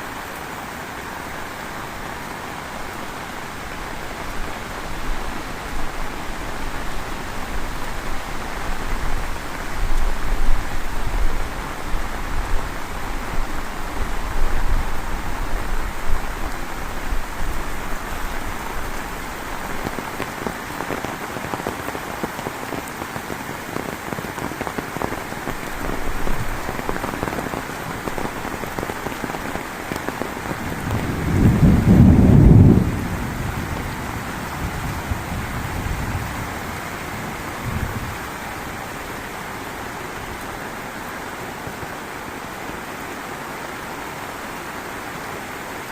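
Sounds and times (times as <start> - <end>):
heavy rain falling: 0.0 - 45.9
thunder rumbling: 30.6 - 38.4.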